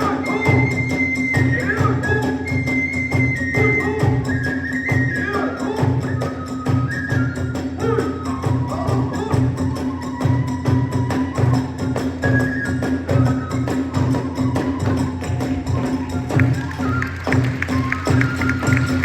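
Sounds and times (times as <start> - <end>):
transverse flute melody: 0.0 - 19.0
drum beats: 9.4 - 19.0.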